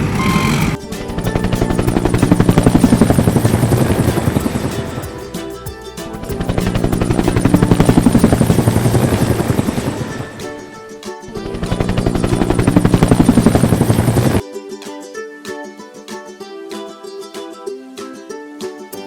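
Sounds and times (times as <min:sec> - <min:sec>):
helicopter rotor chop: 0:00.0 - 0:14.4
ukulele music: 0:00.0 - 0:19.0.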